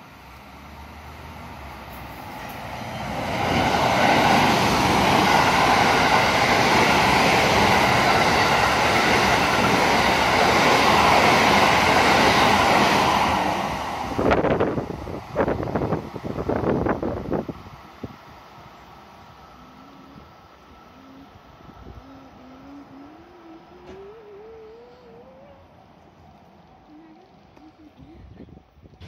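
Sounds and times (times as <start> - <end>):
electric train passing: 0.0 - 29.0
wind gusts on microphone: 3.2 - 18.7, 27.8 - 29.0.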